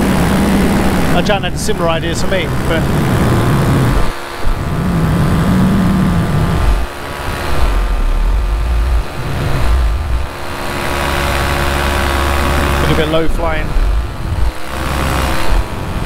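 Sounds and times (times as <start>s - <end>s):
paramotor engine running: 0.0s - 16.0s
wind rumble on microphone: 0.0s - 16.0s.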